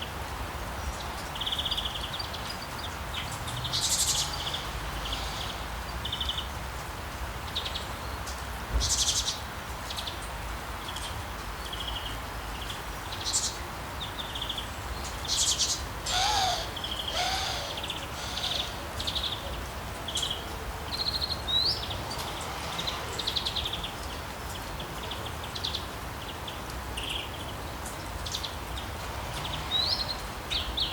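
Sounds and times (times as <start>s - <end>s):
rain hiss: 0.0s - 30.9s
birds chirping and twittering: 7.5s - 30.9s
lower bird calls: 15.3s - 19.6s.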